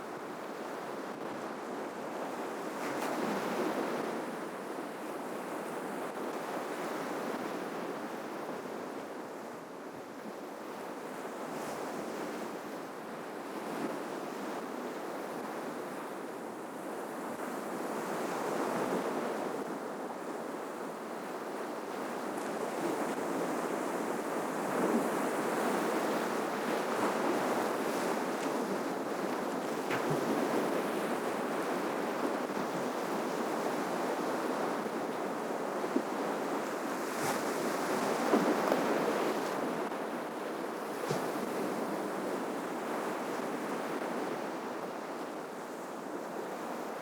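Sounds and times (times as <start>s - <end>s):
sea waves breaking on shore: 15.2s - 47.0s.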